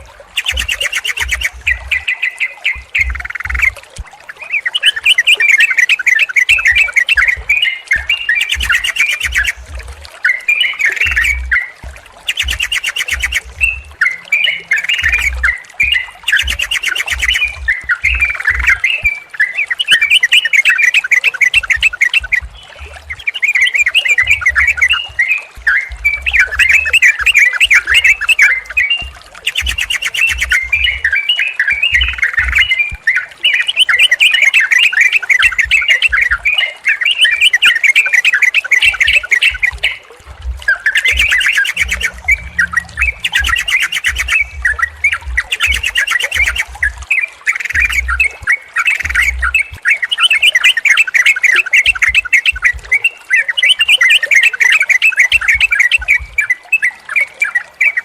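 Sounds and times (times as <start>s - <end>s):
bulbuls chattering and singing: 0.0s - 58.0s
buzzy bird calls: 0.4s - 3.8s, 4.6s - 11.7s, 12.3s - 31.2s, 40.6s - 56.5s.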